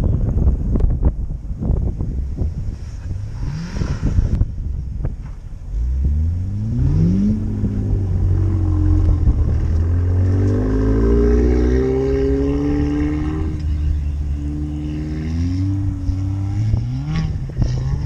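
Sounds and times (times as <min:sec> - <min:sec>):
wind buffeting microphone: 0:00.0 - 0:18.0
car engine accelerating: 0:02.7 - 0:18.0.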